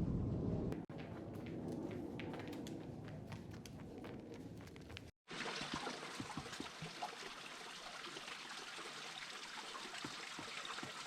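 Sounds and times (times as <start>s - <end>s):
low rumbling noise: 0.0s - 5.1s
water trickling with small splashes: 5.3s - 11.0s.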